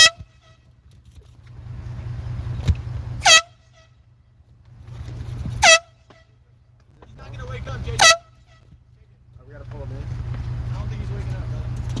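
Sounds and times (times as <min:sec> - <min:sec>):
air horn blast: 0:00.0 - 0:00.8, 0:03.2 - 0:04.1, 0:05.5 - 0:06.5, 0:07.9 - 0:08.8.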